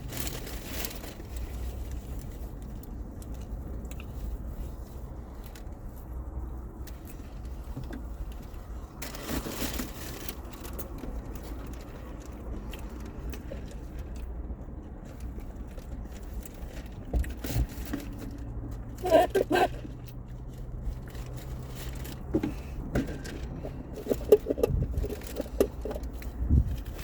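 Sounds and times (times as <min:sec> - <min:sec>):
chewing: 0:23.4 - 0:27.0.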